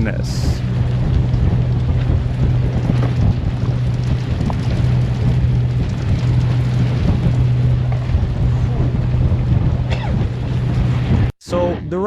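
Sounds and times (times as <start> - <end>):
boat engine humming: 0.0 - 12.0
wind: 0.0 - 12.0
rain: 0.5 - 9.5.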